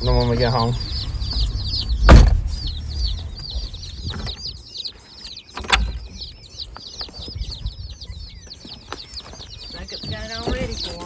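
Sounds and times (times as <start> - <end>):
chicks peeping: 0.0 - 11.0
knocks: 1.2 - 4.4.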